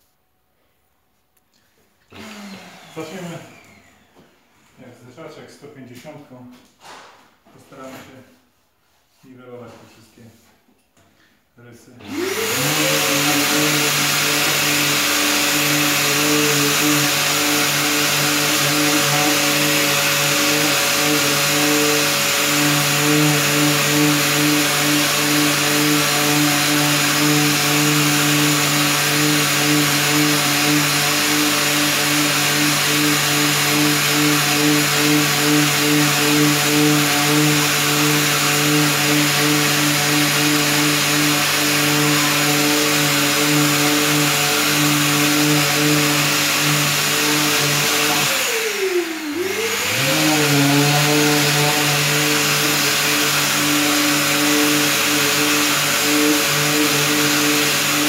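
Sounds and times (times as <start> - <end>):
orbital sander sanding: 12.0 - 58.0.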